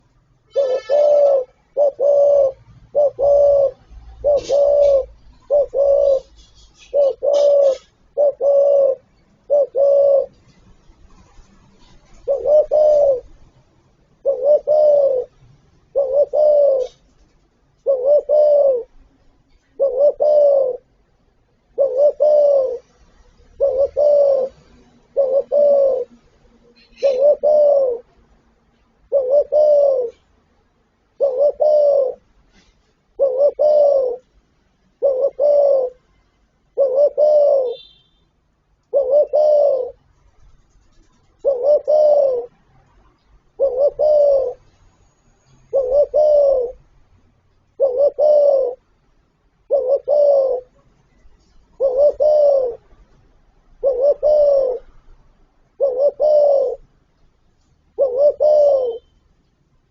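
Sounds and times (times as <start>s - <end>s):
dove cooing: 0.0s - 10.5s, 11.8s - 13.4s, 14.2s - 17.1s, 17.8s - 19.0s, 19.6s - 20.9s, 21.7s - 28.2s, 29.1s - 30.3s, 31.1s - 34.3s, 35.0s - 36.0s, 36.7s - 38.0s, 38.9s - 40.0s, 40.8s - 44.7s, 45.6s - 46.8s, 47.8s - 48.8s, 49.6s - 50.8s, 51.8s - 52.9s, 53.7s - 55.0s, 55.7s - 56.9s, 57.9s - 59.1s.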